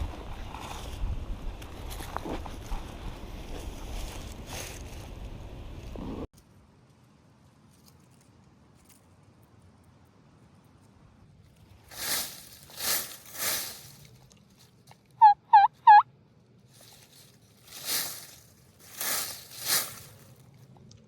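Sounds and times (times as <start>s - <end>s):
raking through dry leaves: 1.8s - 5.3s, 11.6s - 14.7s, 16.7s - 20.5s
turkey call yelps: 15.2s - 16.1s.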